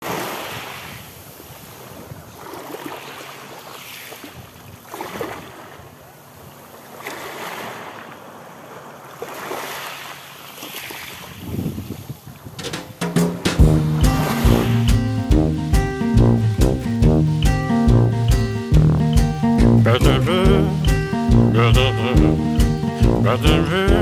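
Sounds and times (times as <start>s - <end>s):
wind on microphone: 11.3s - 12.7s
sea waves washing in: 13.2s - 17.0s.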